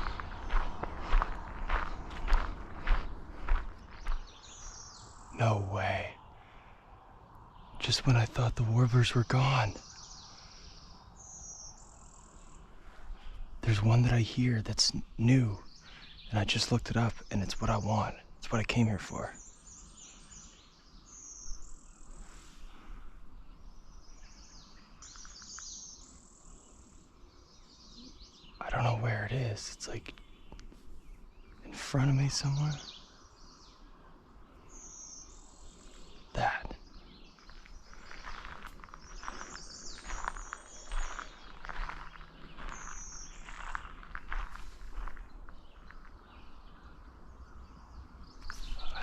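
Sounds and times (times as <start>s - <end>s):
footsteps: 0.0s - 4.3s, 37.4s - 46.2s
high warbler song: 0.0s - 49.0s
outdoor ambience: 0.0s - 49.0s
songbirds singing: 0.0s - 49.0s.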